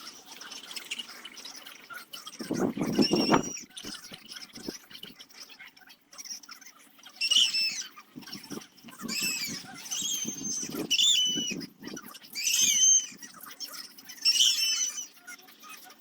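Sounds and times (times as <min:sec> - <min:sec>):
carving tool squeaking on wood: 0:02.6 - 0:03.7, 0:08.4 - 0:11.7, 0:12.4 - 0:13.2, 0:14.2 - 0:15.2.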